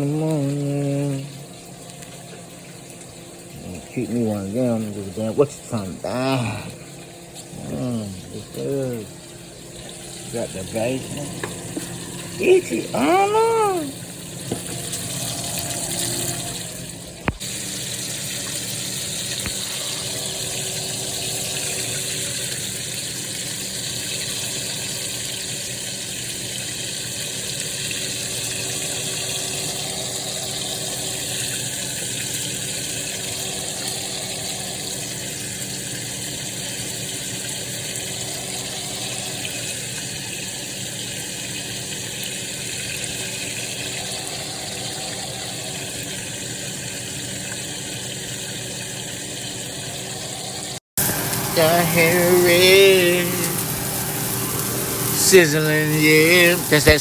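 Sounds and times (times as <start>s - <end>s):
low steady hum: 0.0s - 57.0s
bacon sizzling in a pan: 11.0s - 44.0s, 51.0s - 57.0s.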